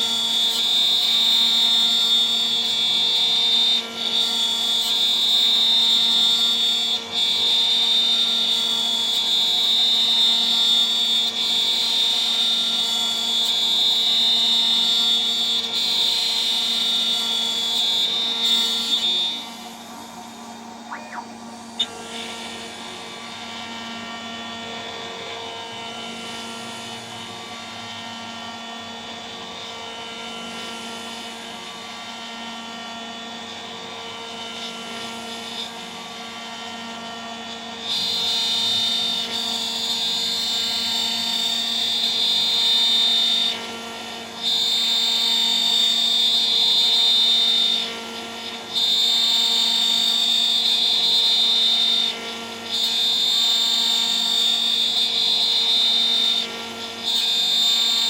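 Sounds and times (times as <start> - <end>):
high-pitched cutting whine: 20.8 - 22.1.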